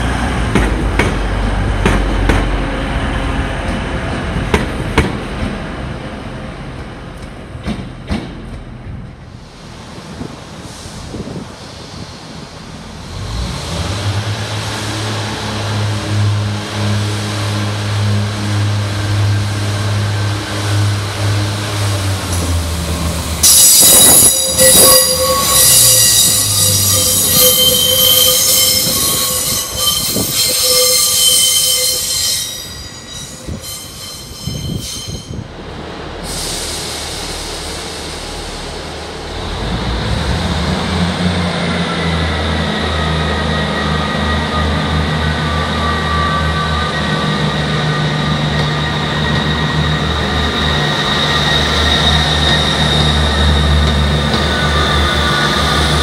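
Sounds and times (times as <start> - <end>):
train wheels squealing: 23.4 - 35.4, 41.7 - 56.0
diesel train engine running: 35.3 - 56.0.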